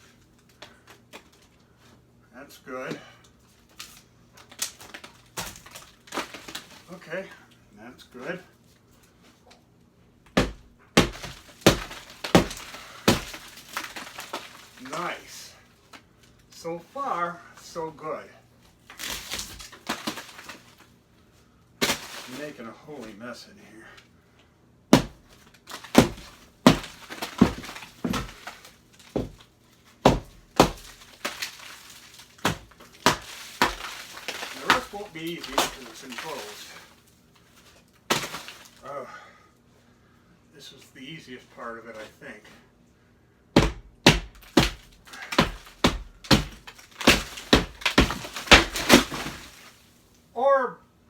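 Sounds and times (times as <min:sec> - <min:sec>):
drywall cracking and crumbling: 0:03.0 - 0:07.4, 0:10.3 - 0:16.5, 0:18.6 - 0:21.0, 0:21.8 - 0:23.1, 0:24.9 - 0:38.9, 0:43.6 - 0:50.1
hammer knocking on drywall: 0:10.4 - 0:13.2, 0:25.0 - 0:25.2, 0:30.1 - 0:30.9, 0:43.6 - 0:44.8.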